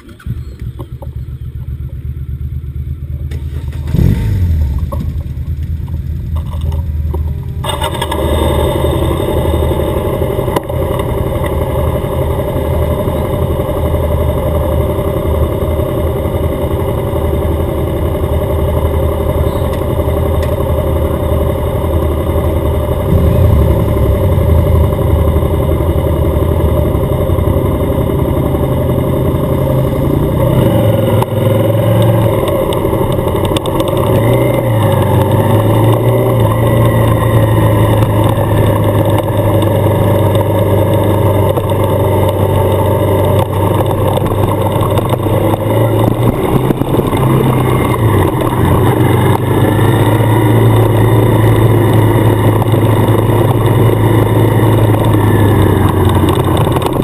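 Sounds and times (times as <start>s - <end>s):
motorcycle engine running: 0.0s - 57.0s
road and wind noise: 0.0s - 57.0s.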